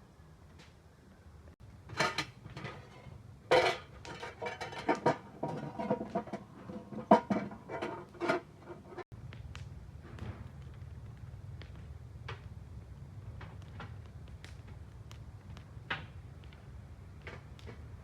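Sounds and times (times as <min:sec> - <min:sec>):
pots and dishes clinking: 0:01.9 - 0:09.0.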